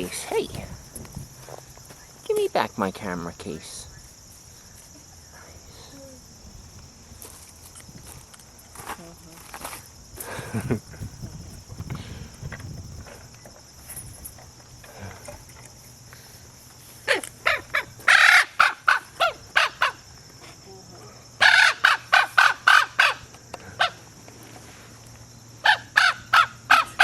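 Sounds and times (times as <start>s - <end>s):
raven calling: 17.0s - 20.2s, 21.4s - 24.1s, 25.6s - 27.0s.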